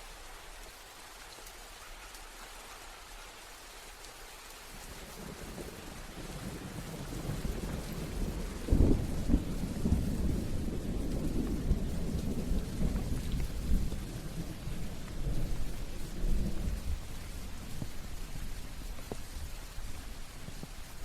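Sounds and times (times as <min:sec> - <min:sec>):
steady rain: 0:00.0 - 0:21.0
rolling thunder rumble: 0:05.2 - 0:21.0.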